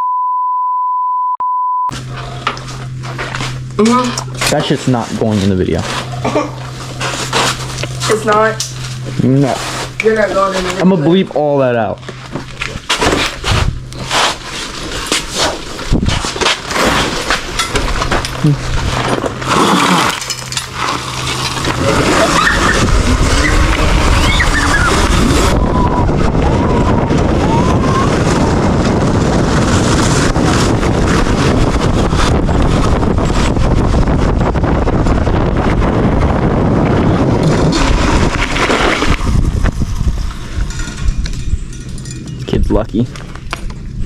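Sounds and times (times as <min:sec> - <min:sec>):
dirt bike engine whining: 0:01.9 - 0:44.0
wind buffeting microphone: 0:12.5 - 0:19.6, 0:21.0 - 0:44.0
rushing noise: 0:18.6 - 0:41.2.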